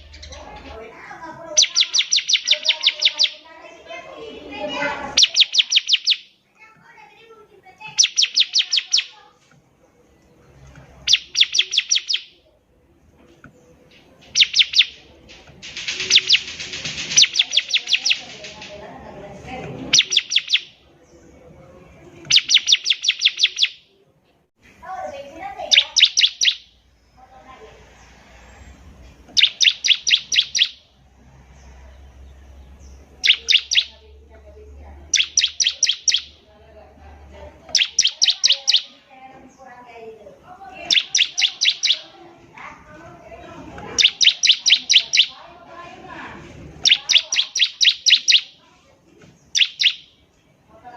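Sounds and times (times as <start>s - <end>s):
bird chirping: 0.0s - 6.8s, 7.7s - 24.1s, 25.1s - 48.7s, 49.3s - 50.9s.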